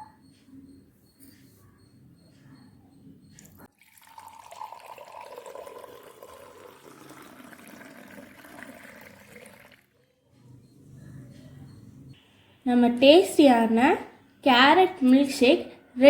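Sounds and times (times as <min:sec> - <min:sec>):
liquid pouring and trickling: 0:03.4 - 0:10.1.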